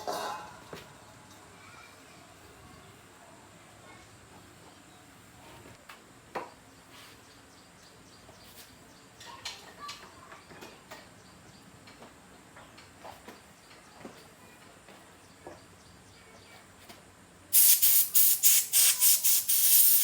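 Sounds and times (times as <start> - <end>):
faint steady hiss: 16.2 - 20.0.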